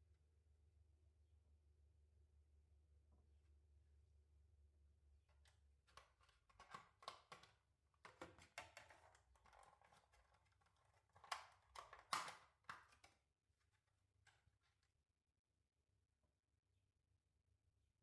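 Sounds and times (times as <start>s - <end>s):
kitchen items tapping and clicking: 5.9s - 13.1s.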